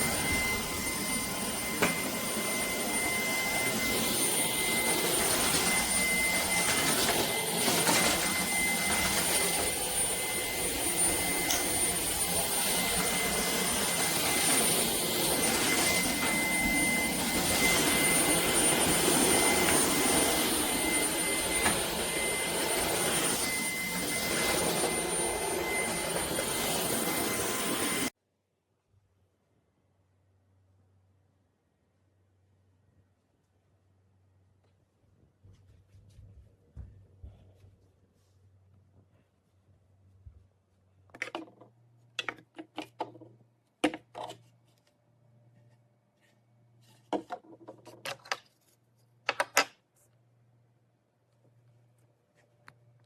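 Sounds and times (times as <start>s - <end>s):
vacuum cleaner running: 0.0s - 28.1s.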